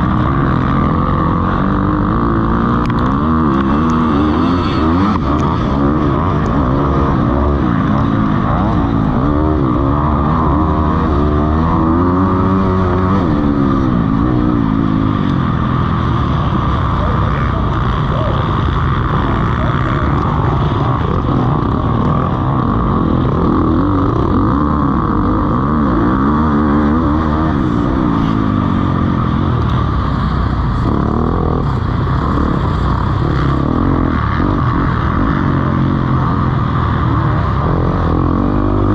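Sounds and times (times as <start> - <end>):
motocross bikes revving: 0.0 - 38.9.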